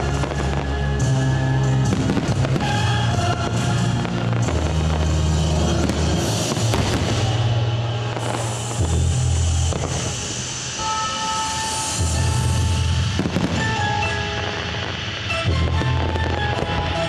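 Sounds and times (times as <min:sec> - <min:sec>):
loud music with bass and drums: 0:00.0 - 0:10.8, 0:11.4 - 0:17.0
fireworks bangs and crackles: 0:00.0 - 0:17.0.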